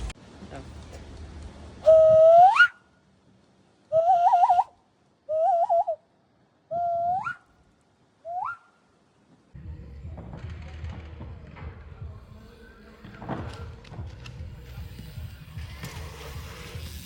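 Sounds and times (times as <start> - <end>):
whistle-like calls: 1.8 - 2.8, 3.9 - 6.0, 6.7 - 7.5, 8.2 - 8.8.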